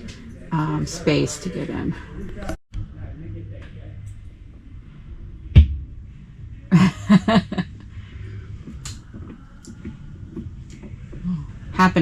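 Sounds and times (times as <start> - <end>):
heavy thump: 5.6 - 6.0
person laughing: 6.7 - 7.7.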